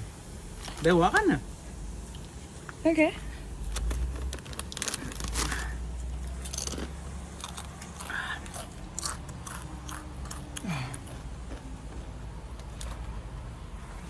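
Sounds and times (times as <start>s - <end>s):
person chewing crunchy chips: 4.2s - 11.7s.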